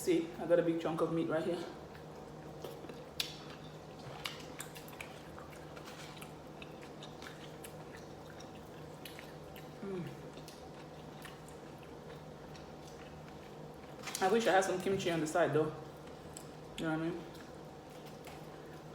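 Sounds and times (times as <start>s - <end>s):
person chewing: 1.8s - 14.2s.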